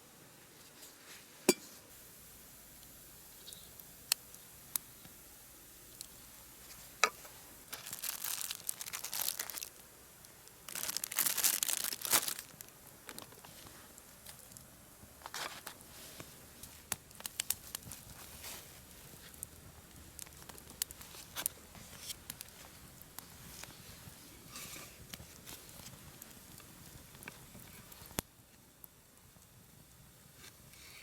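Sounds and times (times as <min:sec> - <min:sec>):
packaging crinkling and tearing: 0:07.7 - 0:14.6, 0:15.2 - 0:15.9, 0:16.9 - 0:23.8.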